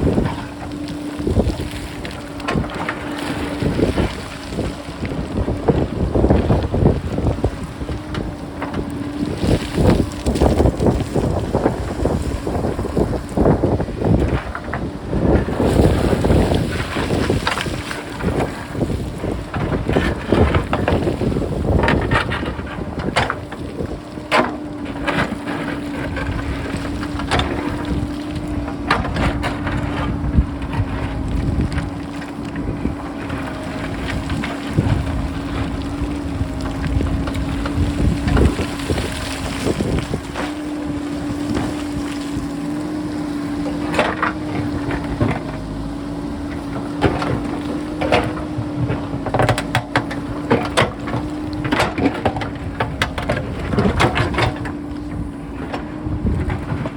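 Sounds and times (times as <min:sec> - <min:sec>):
diesel engine humming: 0:00.0 - 0:56.9
wind on microphone: 0:00.0 - 0:56.9
rocks clattering: 0:00.1 - 0:45.5.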